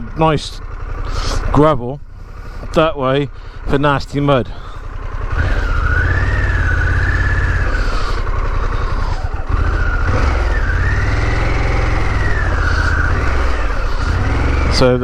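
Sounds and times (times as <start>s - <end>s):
motorcycle engine running: 0.0s - 15.0s
high whine: 5.2s - 15.0s.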